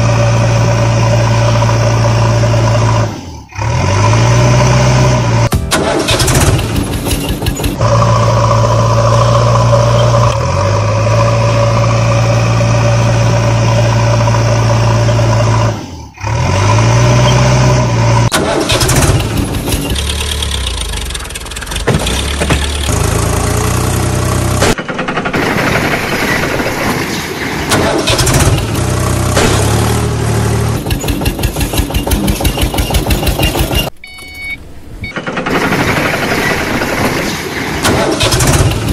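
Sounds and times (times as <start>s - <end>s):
heavy diesel engine revving: 0.0s - 7.0s, 7.7s - 24.7s, 28.0s - 30.8s
clanking and rattling: 5.5s - 8.0s, 18.3s - 23.0s, 30.6s - 34.0s, 35.0s - 38.9s.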